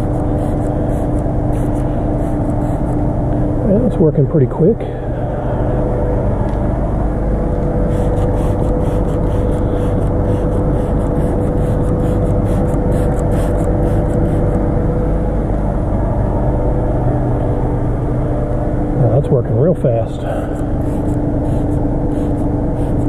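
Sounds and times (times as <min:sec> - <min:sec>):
defrost fan blowing: 0:00.0 - 0:23.0.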